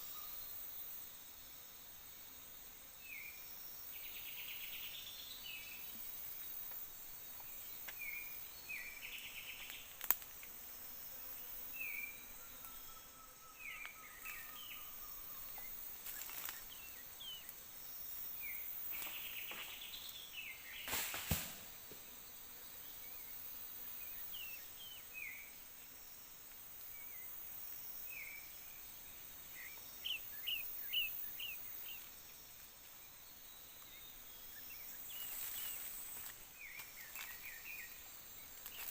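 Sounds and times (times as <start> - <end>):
insect hiss: 0.0 - 38.9
birds chirping: 29.4 - 32.1.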